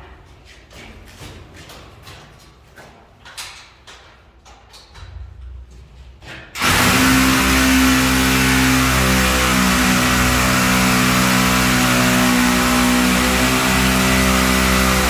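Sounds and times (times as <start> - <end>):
loud motor humming: 6.6 - 15.0.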